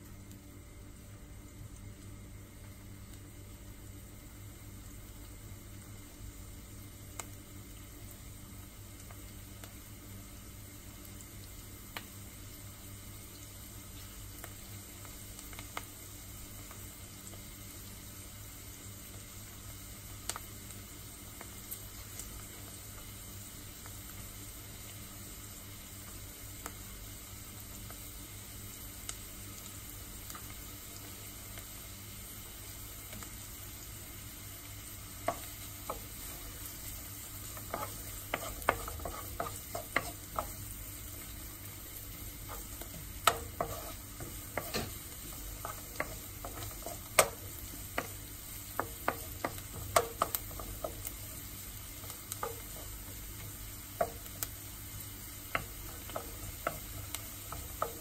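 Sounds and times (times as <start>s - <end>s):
onions sizzling in oil: 0.0s - 58.0s
spatula knocking and scraping pan: 35.3s - 41.3s, 42.1s - 53.3s, 54.0s - 54.4s, 55.4s - 58.0s.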